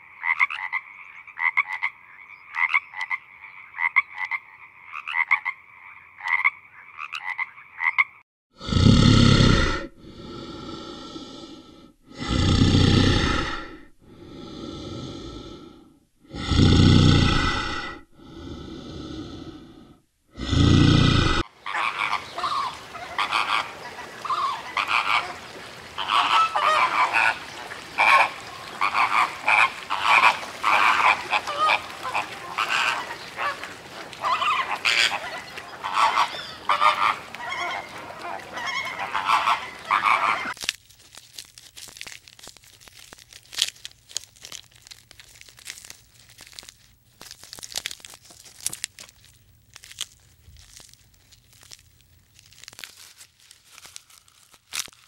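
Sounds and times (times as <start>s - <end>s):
loud drawn-out animal calls: 20.6s - 40.6s
animals chattering together: 26.0s - 40.7s.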